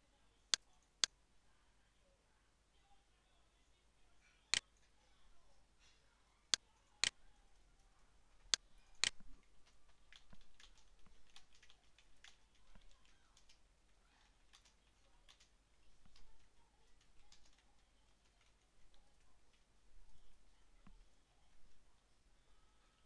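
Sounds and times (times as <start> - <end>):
typing on computer keyboard: 9.0 - 13.6, 14.2 - 19.6.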